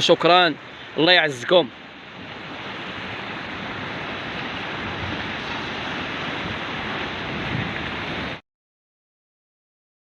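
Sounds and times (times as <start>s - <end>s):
sea surf washing on shore: 0.0s - 8.4s
wind on microphone: 1.4s - 8.4s.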